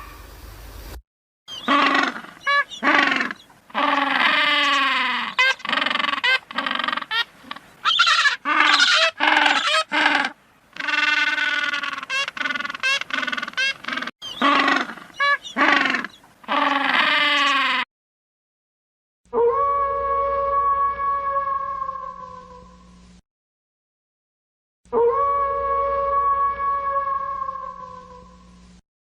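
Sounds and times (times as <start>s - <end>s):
pitched animal calls: 1.5s - 17.9s, 24.9s - 28.4s.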